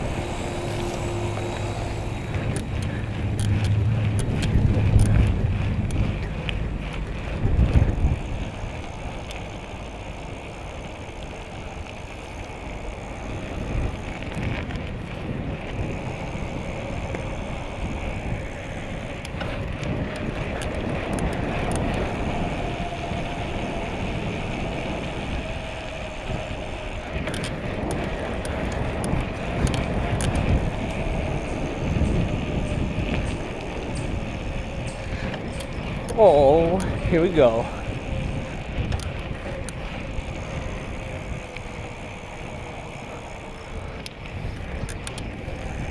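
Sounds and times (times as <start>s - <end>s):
bicycle tyre and road noise: 0.0s - 45.9s
faint steady whine: 0.0s - 45.9s
wind rumbling on microphone: 0.0s - 45.9s.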